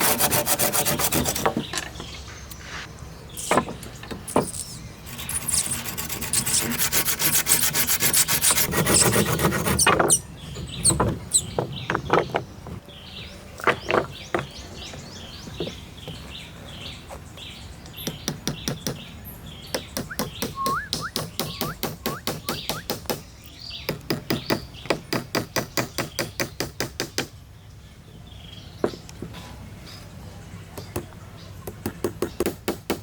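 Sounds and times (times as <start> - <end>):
birds chirping: 0.8 - 32.6
whistled rising notes: 20.5 - 22.9.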